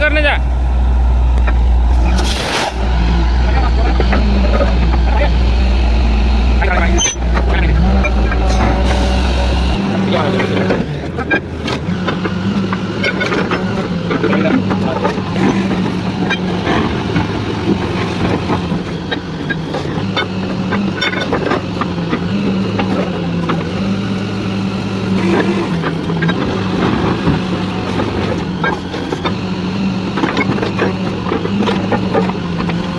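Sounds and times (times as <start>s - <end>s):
drilling rig engine running: 0.0s - 32.9s.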